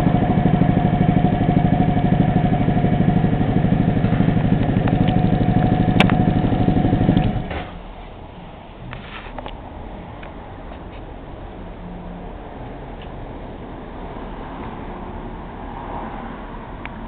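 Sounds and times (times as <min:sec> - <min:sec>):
scooter engine idling: 0:00.0 - 0:07.7.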